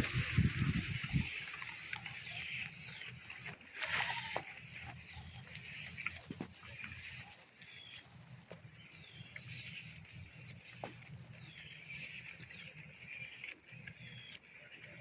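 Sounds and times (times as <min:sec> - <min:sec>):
clicks and snaps of leaves: 0:00.0 - 0:08.6.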